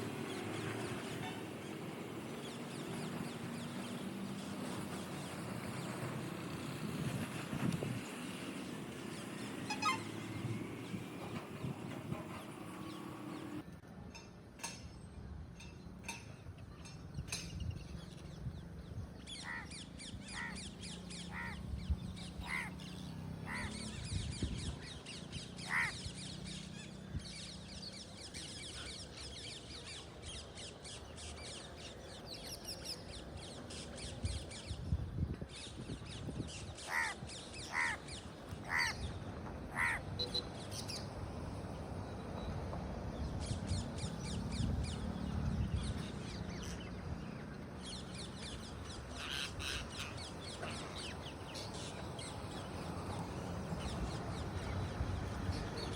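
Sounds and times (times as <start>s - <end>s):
flock of birds chattering: 25.5s - 26.4s.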